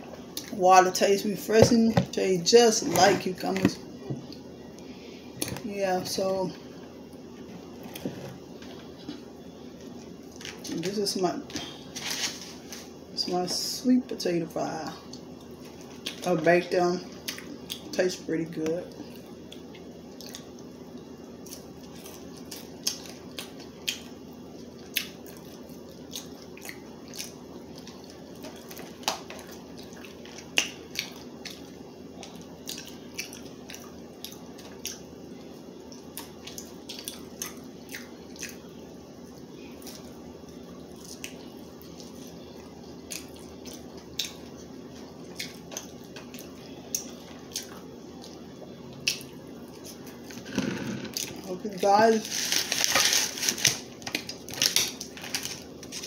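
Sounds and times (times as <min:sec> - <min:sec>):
steady low hum: 0:00.0 - 0:56.0
person chewing with mouth clicks: 0:24.8 - 0:31.6, 0:35.9 - 0:38.6.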